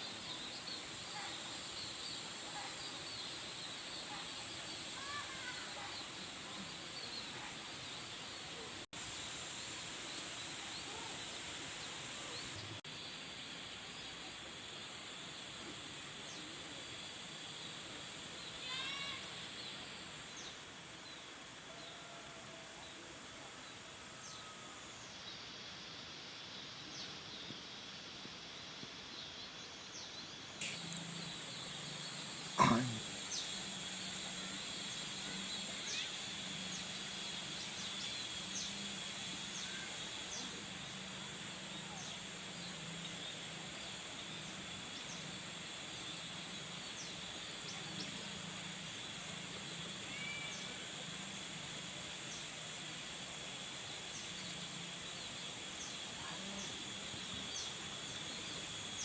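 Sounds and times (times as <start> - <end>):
birds chirping: 0.0 - 12.8, 29.9 - 41.1
steady high-pitched whine: 0.0 - 59.0.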